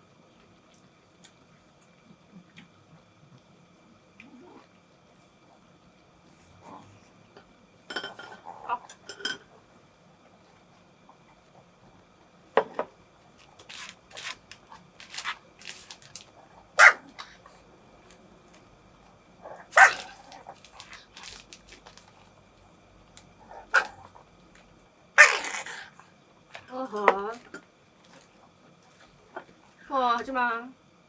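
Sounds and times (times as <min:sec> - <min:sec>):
dog barking: 0:16.8 - 0:17.2, 0:19.7 - 0:20.2.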